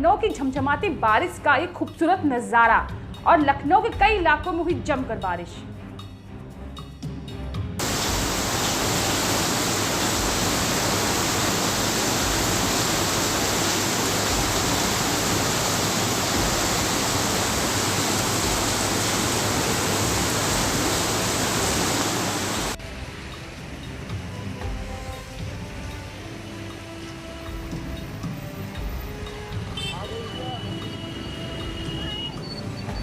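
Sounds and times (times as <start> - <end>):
music: 0.0 - 20.7, 22.7 - 33.0
heavy rain pouring: 7.8 - 27.7.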